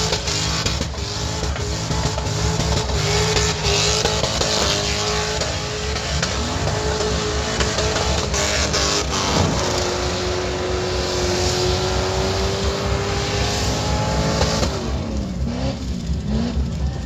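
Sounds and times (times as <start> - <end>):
car engine at high revs: 0.0 - 17.0
loud rushing noise: 9.1 - 15.0.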